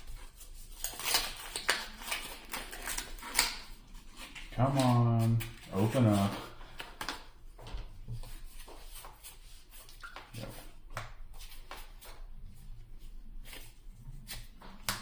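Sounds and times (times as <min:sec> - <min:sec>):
trading cards rustling: 0:00.3 - 0:07.4.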